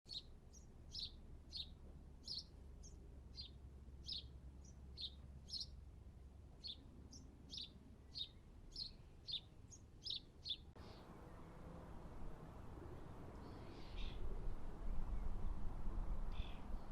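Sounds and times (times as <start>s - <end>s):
small bird chirping: 0.1s - 5.8s, 6.6s - 11.1s, 16.3s - 16.9s.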